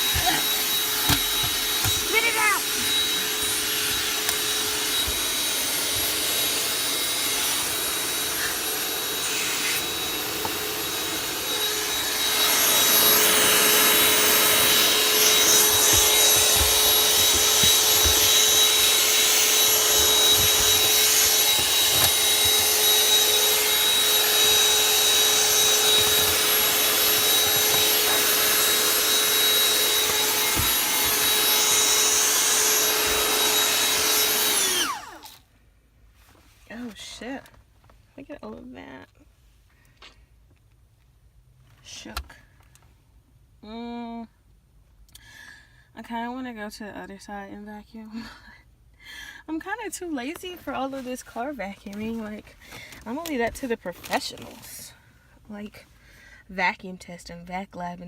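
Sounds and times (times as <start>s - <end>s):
vacuum cleaner running: 0.0s - 35.4s.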